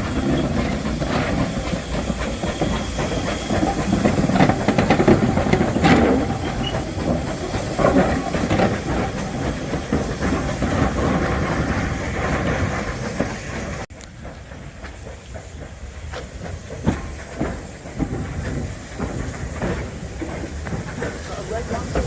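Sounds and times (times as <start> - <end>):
metal knocks and clanks: 0.0 - 13.4
quiet train noise: 0.0 - 22.0
steam locomotive hissing: 0.0 - 22.0.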